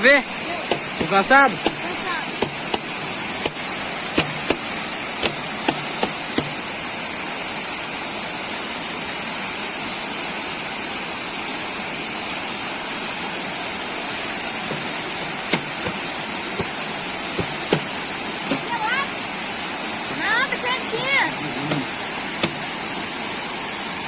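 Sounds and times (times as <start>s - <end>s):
waterfall rushing: 0.0s - 7.5s, 13.1s - 24.0s.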